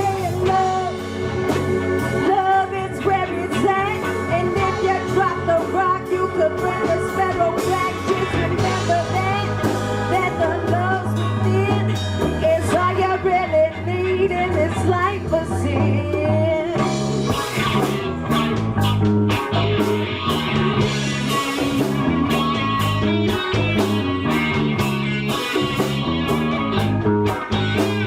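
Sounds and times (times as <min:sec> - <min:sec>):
live band playing: 0:00.0 - 0:28.0
drum beat: 0:17.0 - 0:28.0.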